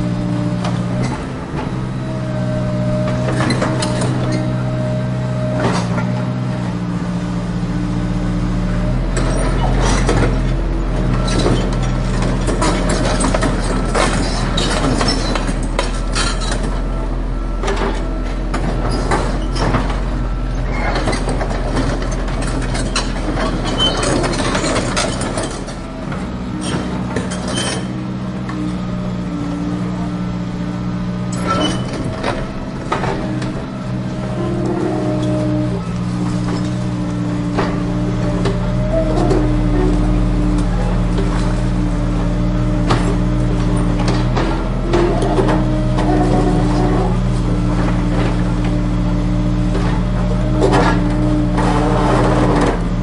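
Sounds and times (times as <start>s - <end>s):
heavy vehicle engine drone: 0.0s - 53.0s
crunching and scraping of gravel: 31.4s - 53.0s.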